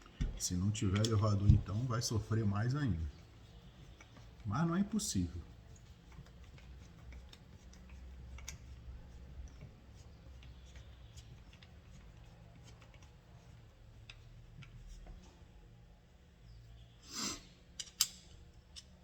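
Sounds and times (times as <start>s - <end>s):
metal parts and tools clicking: 17.8s - 19.0s.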